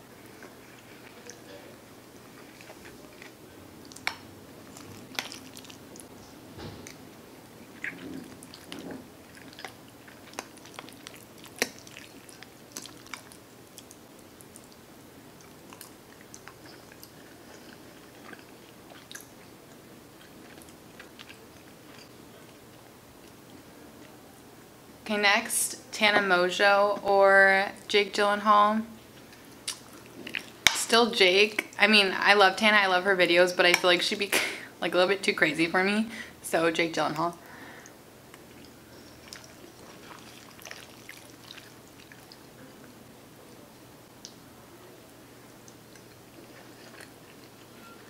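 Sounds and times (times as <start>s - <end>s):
person chewing soft food: 0.1s - 24.2s, 29.0s - 30.8s, 37.5s - 42.6s, 45.4s - 48.0s.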